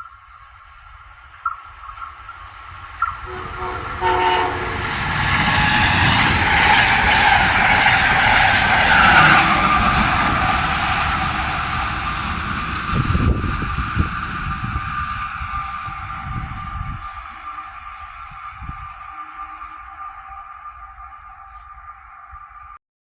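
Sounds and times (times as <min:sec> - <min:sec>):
train rushing and rumbling: 0:01.8 - 0:22.8
train horn chord: 0:03.2 - 0:11.2.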